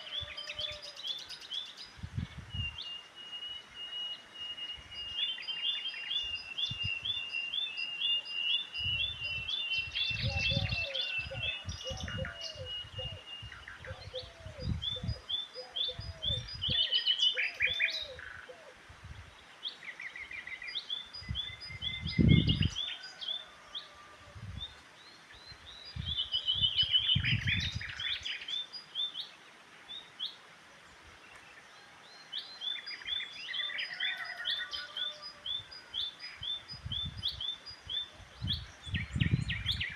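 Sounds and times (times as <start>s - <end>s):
birds chirping and singing: 0.0s - 30.4s, 31.2s - 39.9s
lower repeated bird calls: 2.6s - 18.8s, 31.3s - 39.9s.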